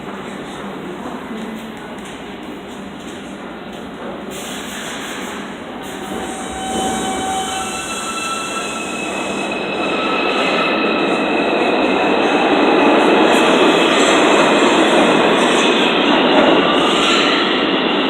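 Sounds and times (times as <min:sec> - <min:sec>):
train wheels rumbling on rail: 0:00.0 - 0:18.0
high wheel squeal: 0:04.4 - 0:18.0.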